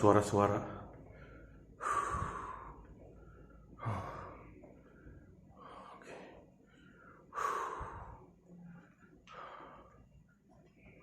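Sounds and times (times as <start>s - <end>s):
man breathing heavily: 0.8s - 11.0s.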